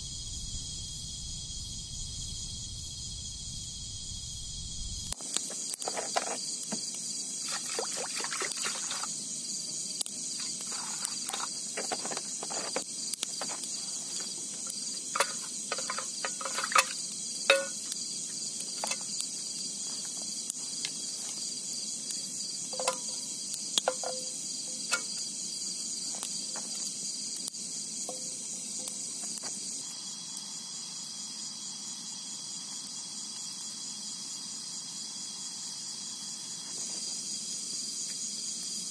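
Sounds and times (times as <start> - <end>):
insects chorus: 0.0 - 38.9
camp gear clinking and knocking: 15.1 - 17.9, 22.7 - 23.2, 23.8 - 25.1.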